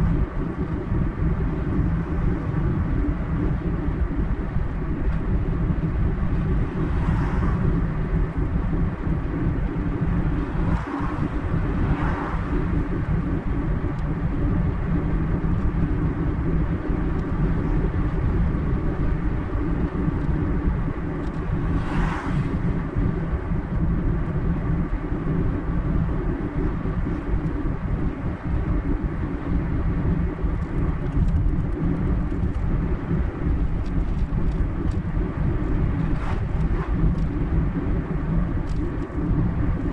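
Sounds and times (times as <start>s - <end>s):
car driving on highway: 0.0s - 39.9s
rushing noise: 6.4s - 13.9s, 21.4s - 23.1s, 34.2s - 39.9s.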